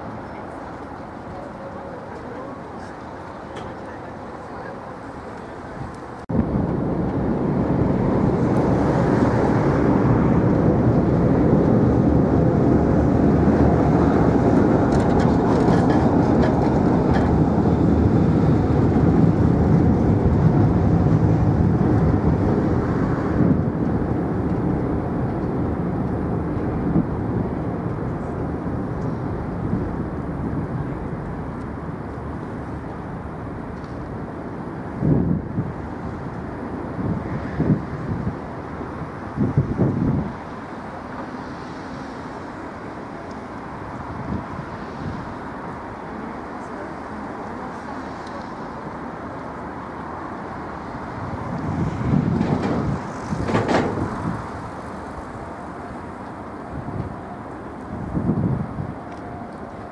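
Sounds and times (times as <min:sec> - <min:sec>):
vehicle engine rumbling: 0:00.0 - 0:45.4.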